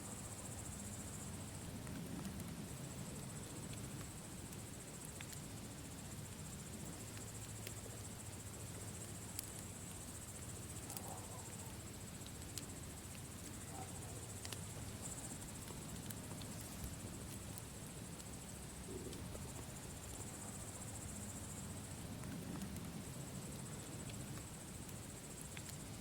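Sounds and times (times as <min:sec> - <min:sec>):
campfire burning: 0:00.1 - 0:26.0
fire crackling pops: 0:01.3 - 0:26.0.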